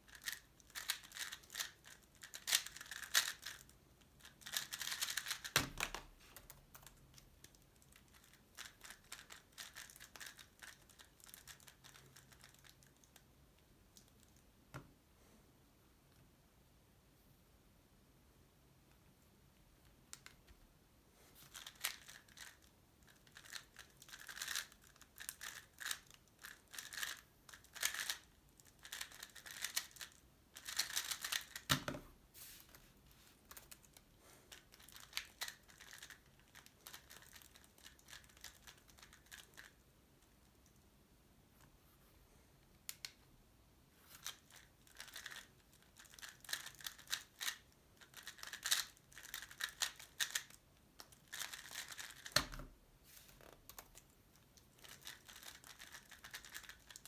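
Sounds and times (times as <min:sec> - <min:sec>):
puzzle cube plastic clicks: 0:00.1 - 0:13.2, 0:21.5 - 0:32.0, 0:33.5 - 0:39.8, 0:44.2 - 0:52.7, 0:53.4 - 0:57.0.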